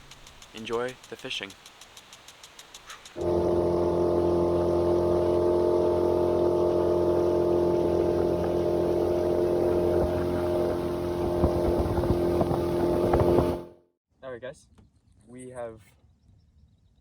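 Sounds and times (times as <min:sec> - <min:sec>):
water noise: 0:00.0 - 0:13.8
outboard motor running: 0:03.2 - 0:13.8
wind noise: 0:07.6 - 0:13.7.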